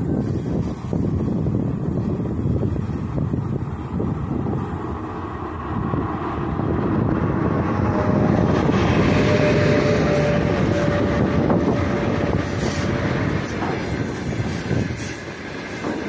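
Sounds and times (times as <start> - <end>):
electric locomotive rumble: 0.0 - 16.0
freight wagons rolling: 10.0 - 16.0.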